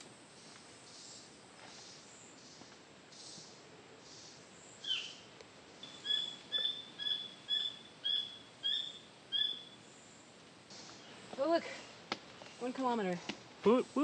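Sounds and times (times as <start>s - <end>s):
bird calling: 0.9s - 10.0s.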